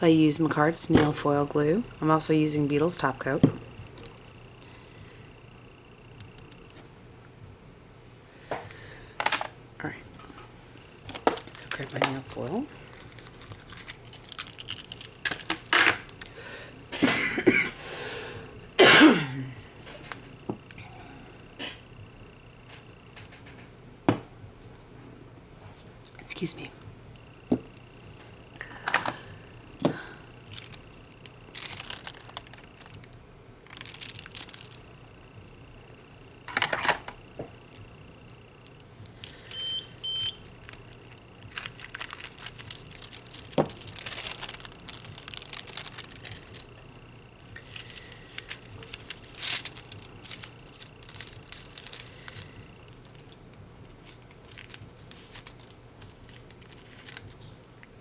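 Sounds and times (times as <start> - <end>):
small clicks: 6.1 - 6.8
foil crinkling and rustling: 11.1 - 16.5, 30.4 - 35.0, 38.5 - 46.8, 47.4 - 58.0
short electronic beeps: 39.5 - 40.4.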